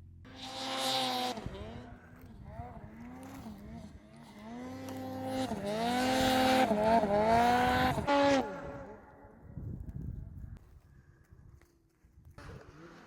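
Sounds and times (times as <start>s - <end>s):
snowmobile engine revving: 0.3s - 9.4s, 12.4s - 13.0s.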